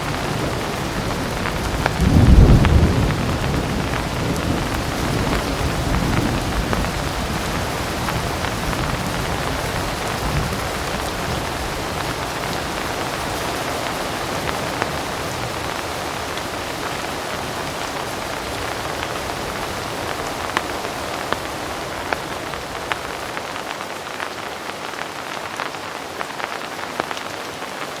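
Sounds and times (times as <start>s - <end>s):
distant thunder rumble: 0.0s - 23.6s
heavy rain falling: 0.0s - 28.0s.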